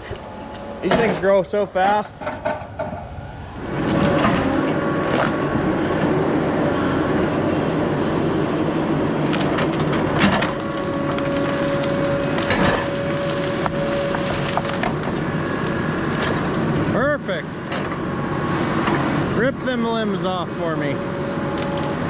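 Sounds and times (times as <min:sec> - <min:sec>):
diesel engine working under load: 0:02.0 - 0:22.0
wood cracking and splintering: 0:09.2 - 0:17.0, 0:21.2 - 0:22.0.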